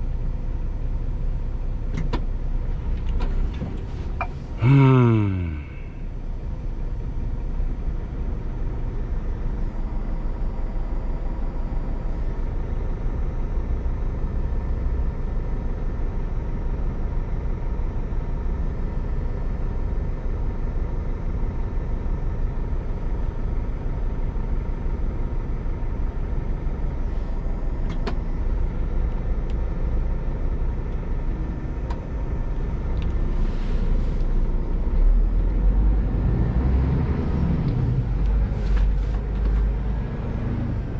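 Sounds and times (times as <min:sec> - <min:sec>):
road rumble: 0:00.0 - 0:40.9
truck diesel engine running: 0:00.0 - 0:40.9
short air hisses: 0:33.4 - 0:34.2.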